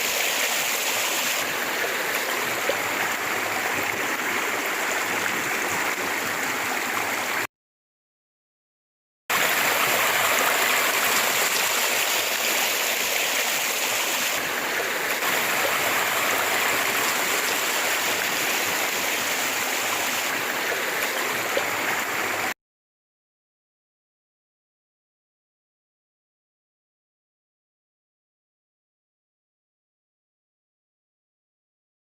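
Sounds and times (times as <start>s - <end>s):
flowing river water: 0.0s - 7.5s, 9.3s - 22.6s.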